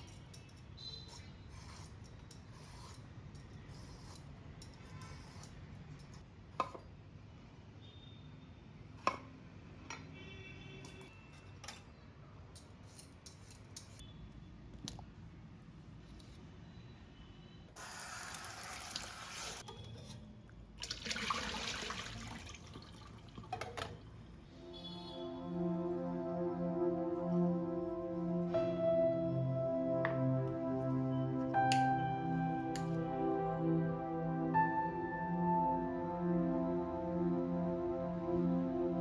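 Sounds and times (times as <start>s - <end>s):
utensils clicking and knocking: 0.0s - 6.8s
water running: 17.8s - 19.6s, 20.8s - 23.9s.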